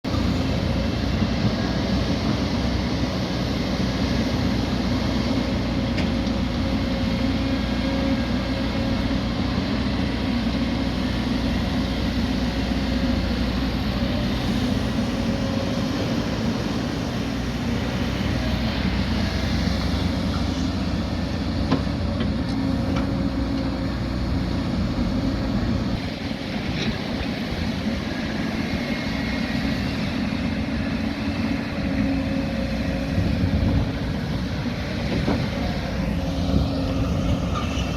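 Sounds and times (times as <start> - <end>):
heavy machinery diesel engine running: 0.0 - 37.9.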